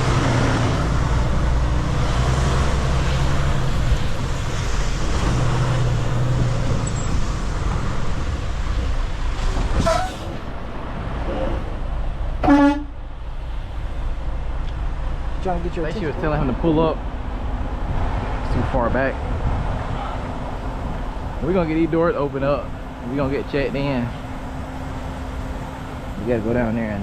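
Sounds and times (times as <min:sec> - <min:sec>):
truck engine idling: 0:00.0 - 0:18.4, 0:19.3 - 0:27.0
vehicle horn toot: 0:12.4 - 0:13.0.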